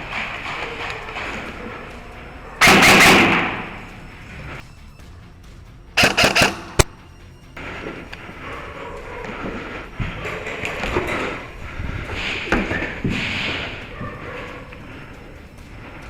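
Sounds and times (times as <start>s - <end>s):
airsoft gun firing: 2.6s - 3.9s, 6.0s - 6.9s.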